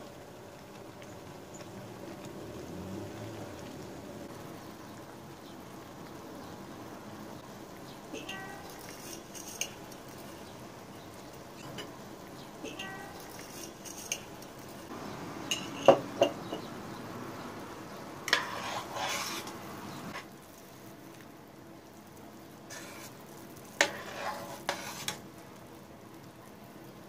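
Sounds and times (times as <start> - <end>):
metal clinks against pot: 15.5 - 16.4.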